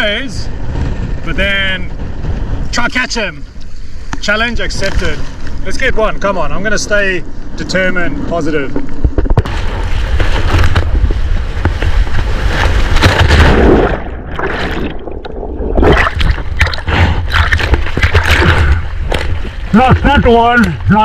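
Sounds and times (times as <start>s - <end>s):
deep rumble: 0.0s - 21.0s
seawater sloshing and splashing: 9.5s - 21.0s.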